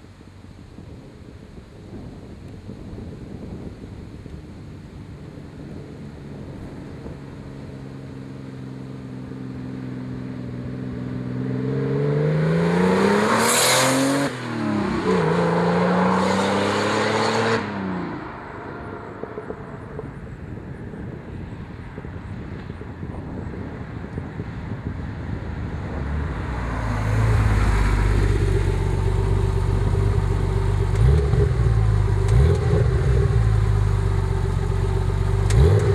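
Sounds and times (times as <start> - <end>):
car engine accelerating hard: 11.0 - 20.3, 26.0 - 35.9.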